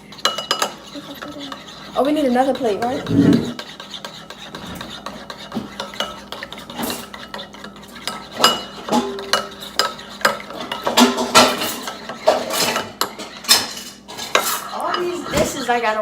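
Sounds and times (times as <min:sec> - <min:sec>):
dishes and cutlery clinking: 0:00.0 - 0:15.8.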